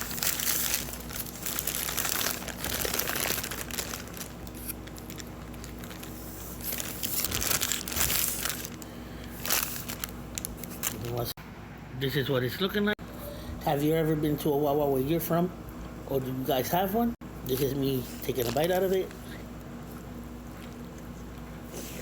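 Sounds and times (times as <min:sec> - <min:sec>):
paper wrapping crinkling: 0:00.0 - 0:11.3, 0:18.1 - 0:19.2.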